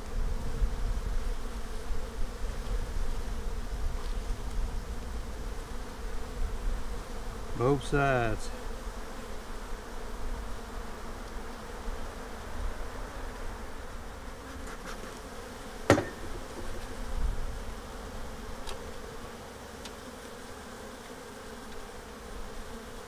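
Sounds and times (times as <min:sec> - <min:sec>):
honeybees buzzing: 0:00.0 - 0:23.0
sharp knock: 0:15.9 - 0:16.8.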